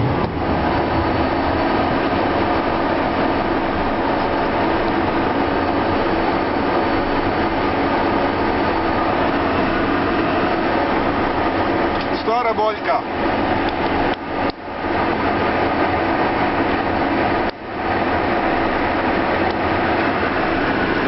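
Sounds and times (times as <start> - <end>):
steady tones: 0.0 - 4.0
jet engines loud rush: 0.0 - 21.0.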